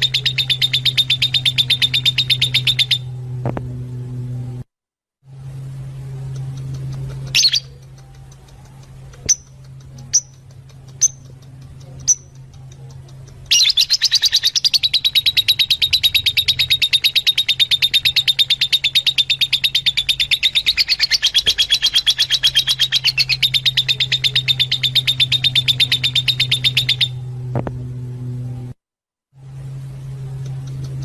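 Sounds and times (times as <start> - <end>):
lovebird chattering: 0.0 - 3.0, 6.4 - 27.2
low hum: 0.0 - 31.0.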